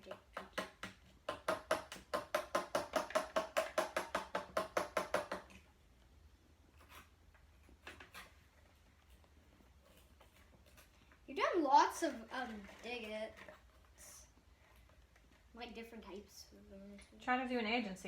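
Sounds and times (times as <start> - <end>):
toy hammer knocking on sand block: 0.0 - 5.5.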